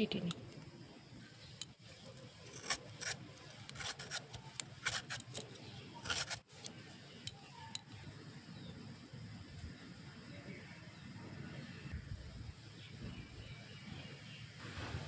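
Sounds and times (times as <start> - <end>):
knife cutting mango: 2.2 - 6.7.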